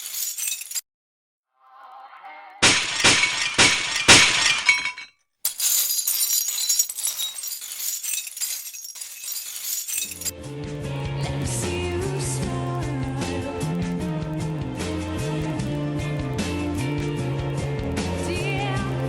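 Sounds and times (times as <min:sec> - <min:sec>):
glass fragments tinkling: 0:00.0 - 0:00.8, 0:02.6 - 0:10.3
glass smashing: 0:00.0 - 0:00.8, 0:02.6 - 0:10.3.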